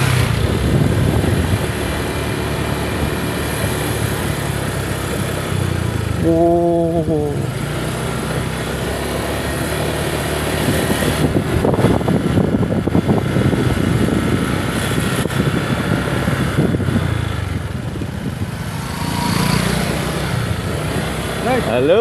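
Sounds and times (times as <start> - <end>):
small engine running: 0.0 - 22.0
thick uneven rushing noise: 9.7 - 22.0.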